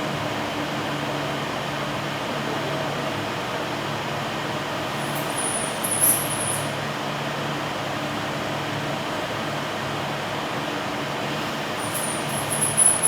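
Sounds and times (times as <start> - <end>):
machinery hum: 4.6 - 7.0, 11.3 - 13.0.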